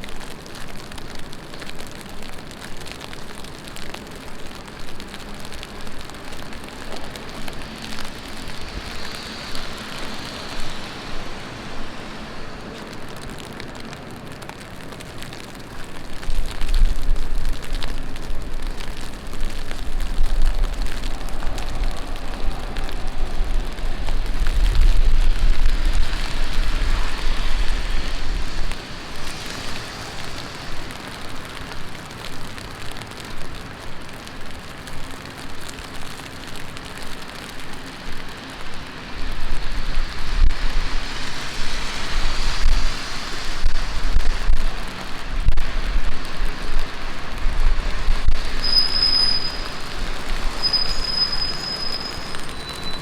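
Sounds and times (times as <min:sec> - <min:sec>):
heavy rain splashing on street: 0:00.0 - 0:53.0
deep low rumble: 0:16.2 - 0:28.8.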